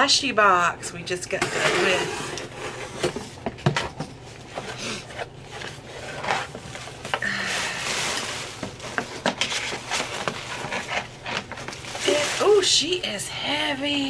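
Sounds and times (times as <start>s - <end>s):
cardboard scraping and rubbing: 1.4s - 3.4s, 4.4s - 12.7s.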